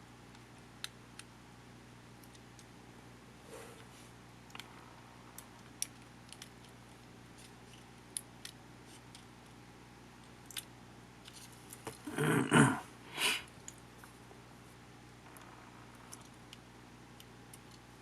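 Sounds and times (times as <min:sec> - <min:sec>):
light clicks of small parts: 0:02.2 - 0:02.7, 0:05.3 - 0:09.6, 0:10.2 - 0:12.0, 0:13.5 - 0:14.2, 0:15.3 - 0:17.9.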